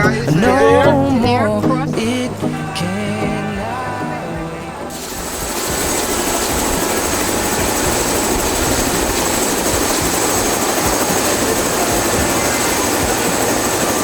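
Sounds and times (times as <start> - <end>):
helicopter rotor and turbine: 4.9 - 14.0
thin high whine: 4.9 - 14.0.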